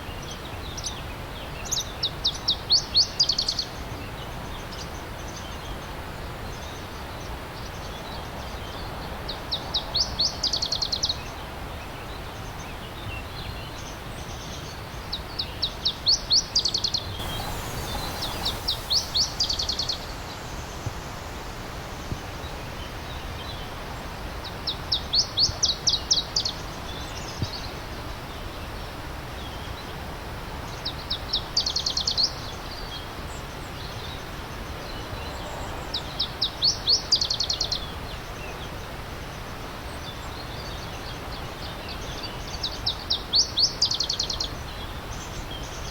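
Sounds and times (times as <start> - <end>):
brook rushing: 17.2 - 21.6.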